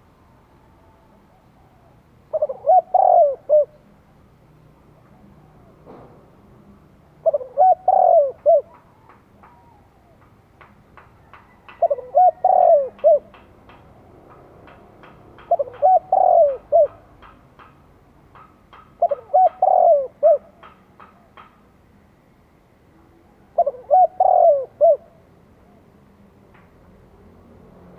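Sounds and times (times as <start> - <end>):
dove cooing: 0.6 - 3.9, 7.1 - 10.3, 11.3 - 13.5, 15.0 - 17.4, 18.7 - 21.4, 23.1 - 25.9.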